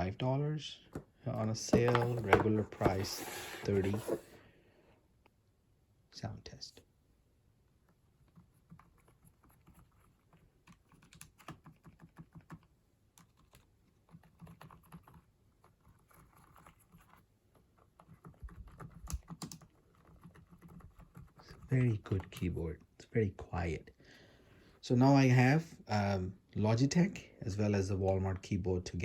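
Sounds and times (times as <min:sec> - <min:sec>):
soft keyboard keystrokes: 0:08.2 - 0:22.6.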